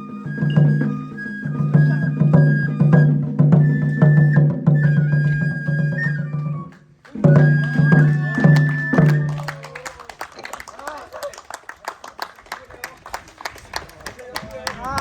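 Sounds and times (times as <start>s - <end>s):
bamboo flute melody: 0.0s - 10.0s
drum strikes: 7.2s - 9.3s.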